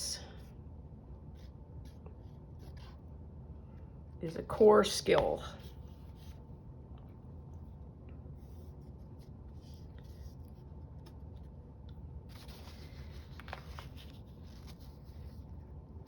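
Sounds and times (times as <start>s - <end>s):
steady low hum: 0.0s - 16.0s
paper scratching and rubbing: 12.3s - 15.8s.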